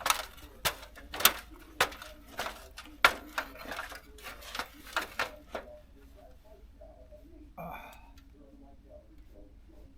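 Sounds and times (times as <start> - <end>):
metal pipe parts clanking: 0.0 - 5.6.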